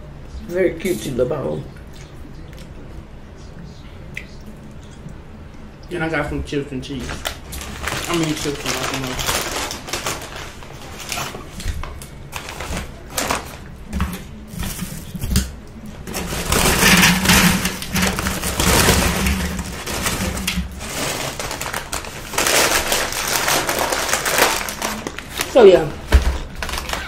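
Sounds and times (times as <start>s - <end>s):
paper bag rustling: 6.9s - 27.0s.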